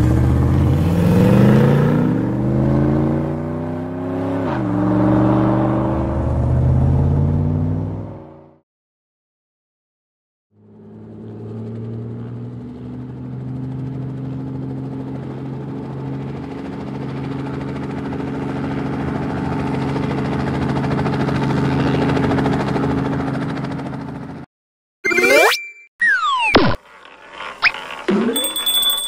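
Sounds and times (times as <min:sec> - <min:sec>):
toy vehicle engine hum: 0:26.8 - 0:29.0.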